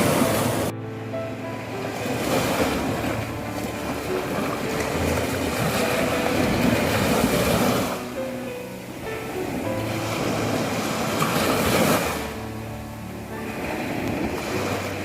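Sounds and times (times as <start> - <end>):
sea waves breaking on a beach: 0.0 - 15.0.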